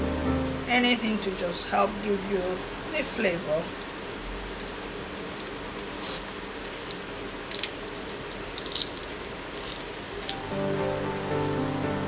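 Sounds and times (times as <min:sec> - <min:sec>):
oil popping and crackling: 0:03.6 - 0:10.4.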